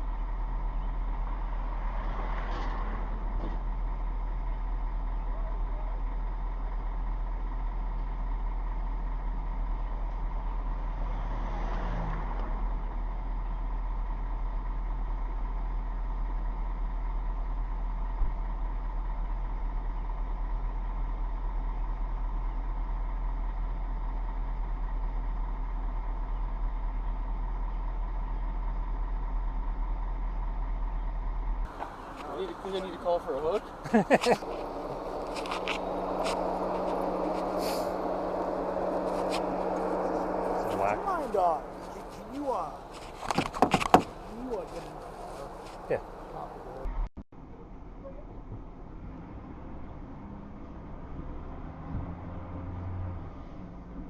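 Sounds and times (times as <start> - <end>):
vehicle engine idling: 0.0 - 51.4
vehicle passing: 10.6 - 13.0, 31.7 - 46.9
sharp knock: 43.2 - 44.1.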